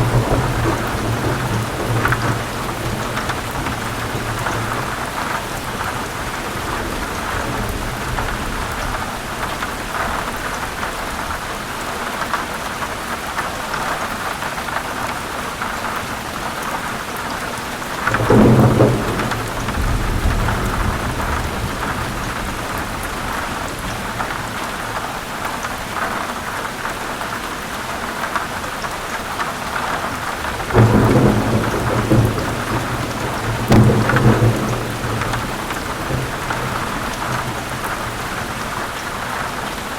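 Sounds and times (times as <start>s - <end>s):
rolling thunder: 0.0s - 11.4s, 17.9s - 25.0s, 29.9s - 39.9s
heavy rain: 0.0s - 39.9s.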